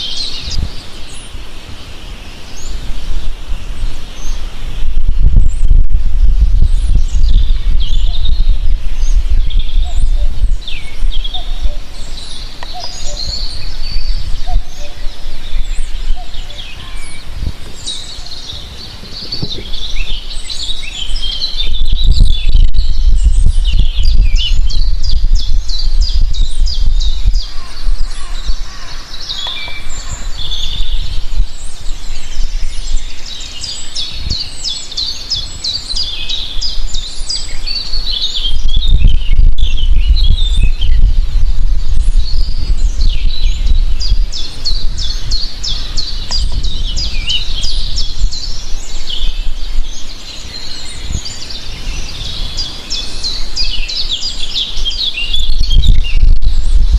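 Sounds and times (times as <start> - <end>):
small birds chirping and singing: 0.0 - 56.9
low rumble: 4.8 - 12.2.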